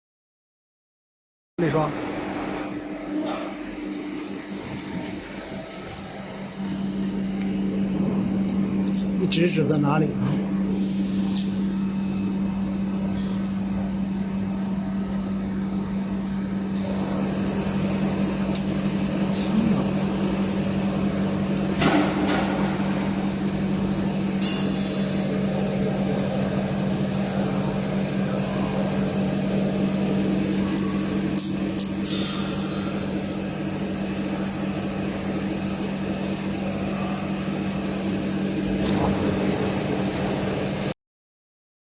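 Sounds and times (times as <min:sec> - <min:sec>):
machine tool humming and cutting: 0:16.8 - 0:40.9.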